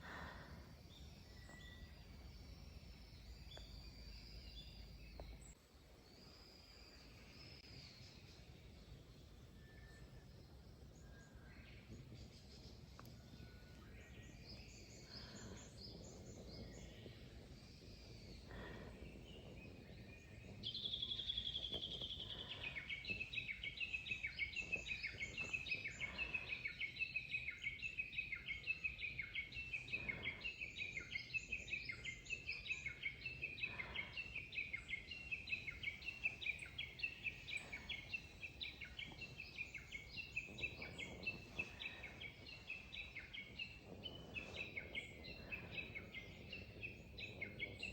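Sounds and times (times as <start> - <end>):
small birds chirping: 0.0 - 47.9
bush warbler calling: 18.0 - 47.9.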